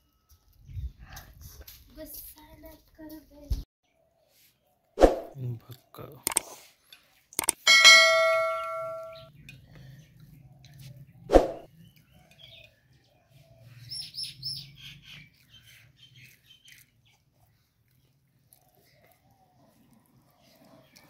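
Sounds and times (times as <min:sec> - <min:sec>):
metallic ringing note: 0:07.7 - 0:09.3
small birds chirping: 0:08.2 - 0:21.0.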